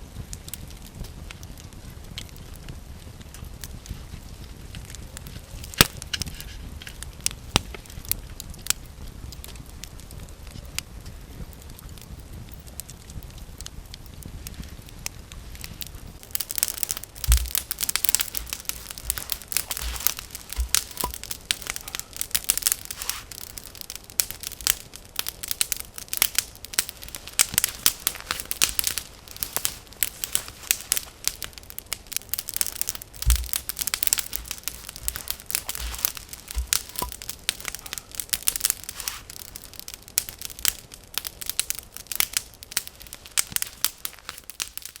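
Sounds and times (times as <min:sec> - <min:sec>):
wood fire crackling: 0:00.0 - 0:45.0
low thump: 0:17.2 - 0:19.4.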